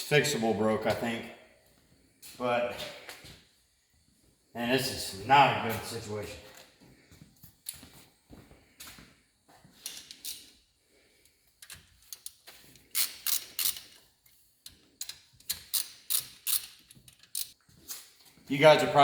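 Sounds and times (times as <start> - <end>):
hand tools clicking and clattering: 11.2 - 18.4.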